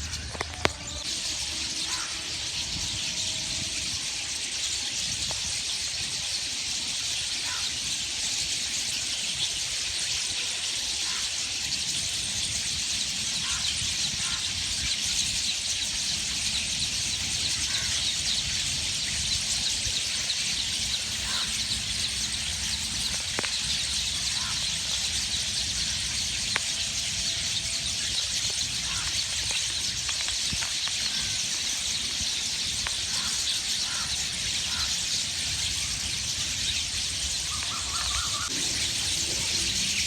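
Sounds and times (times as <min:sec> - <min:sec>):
lower bird call: 0:00.0 - 0:04.9, 0:16.2 - 0:29.9, 0:32.8 - 0:40.0
small birds chirping: 0:11.0 - 0:40.0.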